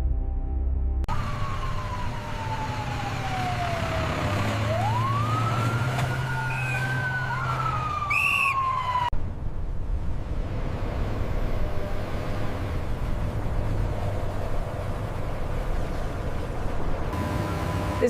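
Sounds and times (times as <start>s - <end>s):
low rumble: 0.0s - 1.1s
emergency vehicle siren wailing: 1.1s - 9.2s, 12.7s - 18.0s.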